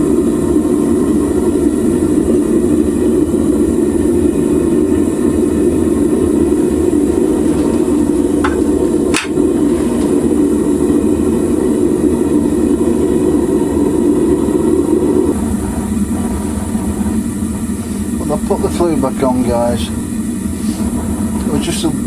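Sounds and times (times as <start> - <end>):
furnace flame rushing: 0.0 - 22.0.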